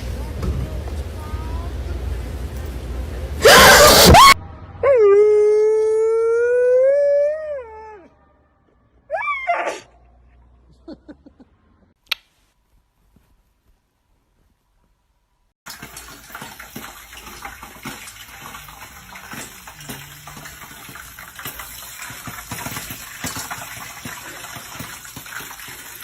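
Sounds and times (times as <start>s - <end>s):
dog yelping: 3.4s - 8.1s, 9.1s - 10.0s
dog howling: 3.4s - 8.3s.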